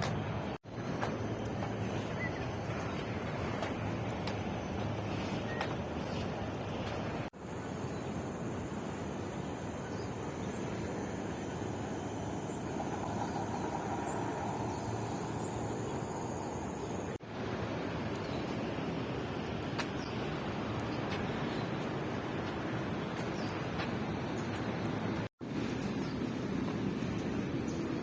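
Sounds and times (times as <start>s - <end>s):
faint high whine: 0.7s - 17.2s.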